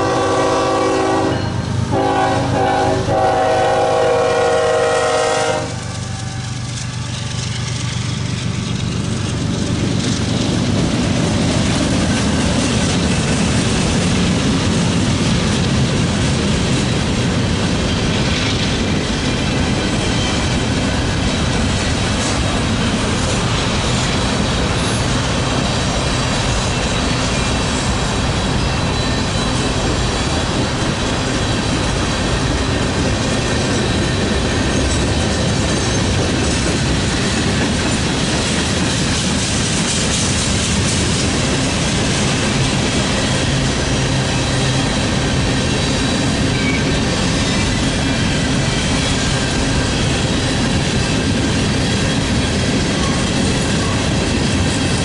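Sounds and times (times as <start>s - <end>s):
train wheels rumbling on rails: 0.0s - 55.0s
wheels clacking over rail joints: 5.8s - 55.0s
high-pitched wheel squeal: 28.5s - 30.3s, 44.4s - 49.4s.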